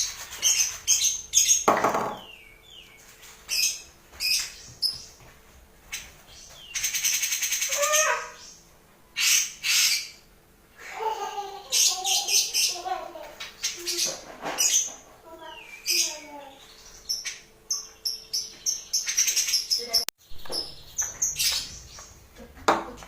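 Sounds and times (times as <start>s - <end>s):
bird harsh rasping calls: 6.7s - 8.6s, 9.2s - 10.3s.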